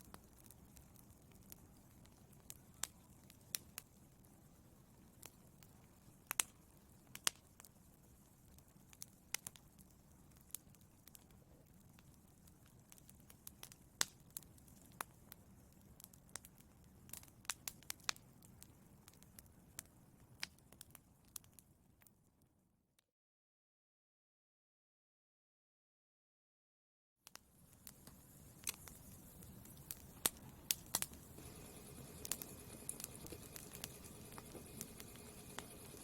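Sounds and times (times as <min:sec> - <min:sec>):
fire crackling and popping: 0:00.0 - 0:22.1, 0:27.2 - 0:36.0
low rumble of flames: 0:27.6 - 0:36.0.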